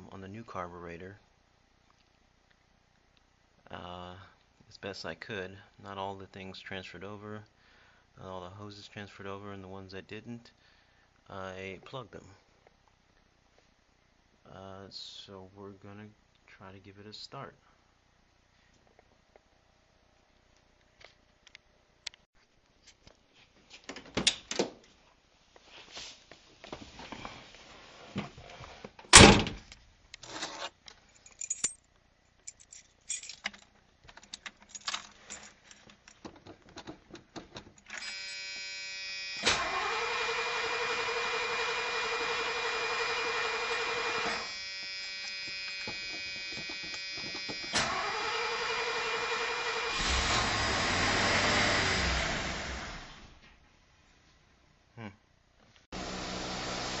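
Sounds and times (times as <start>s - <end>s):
keys jingling: 31.1s - 36.2s
steady warning tone: 38.0s - 39.7s, 41.4s - 48.0s
car engine cranking and starting: 39.4s - 44.4s, 46.0s - 53.4s.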